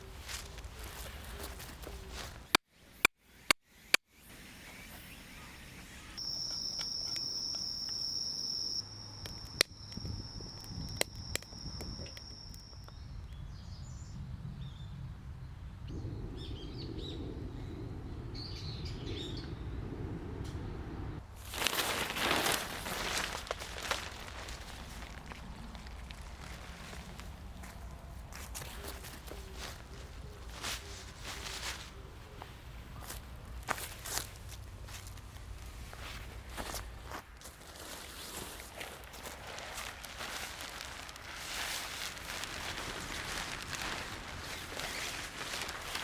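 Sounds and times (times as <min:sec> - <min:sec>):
birds chirping: 0:15.6 - 0:21.2.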